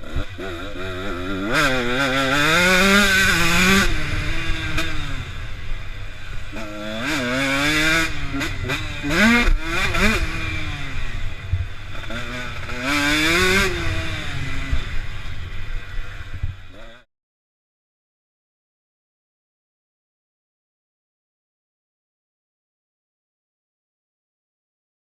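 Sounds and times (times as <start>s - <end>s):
dirt bike engine revving: 0.0s - 17.1s.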